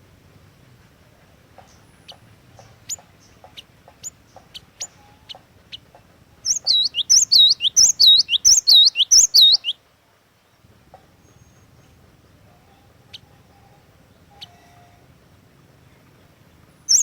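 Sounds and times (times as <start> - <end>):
bird chip notes: 6.4 - 9.7
bird looping whistled notes: 6.5 - 9.8.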